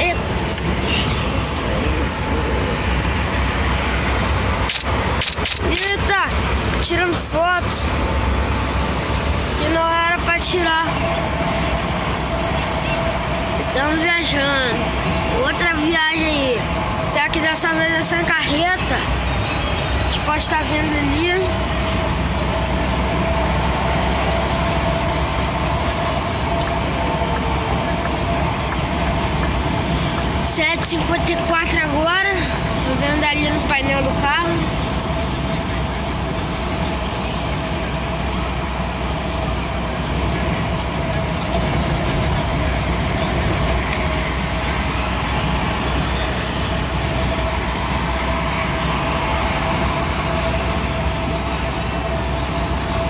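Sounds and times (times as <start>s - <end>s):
road noise: 0.0s - 53.0s
steady whine: 0.0s - 53.0s
truck engine rumble: 0.0s - 53.0s.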